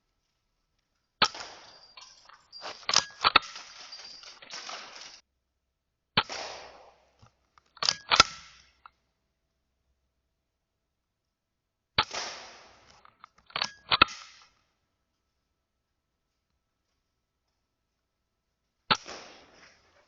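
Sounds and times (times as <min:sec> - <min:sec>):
air rifle firing sharp cracks: 0:01.2 - 0:01.8, 0:06.2 - 0:07.1, 0:12.0 - 0:13.0, 0:18.9 - 0:19.8.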